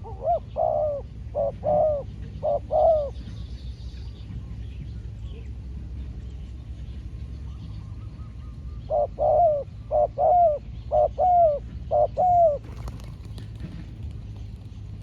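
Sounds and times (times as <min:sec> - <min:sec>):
dove cooing: 0:00.0 - 0:03.1, 0:08.9 - 0:14.7.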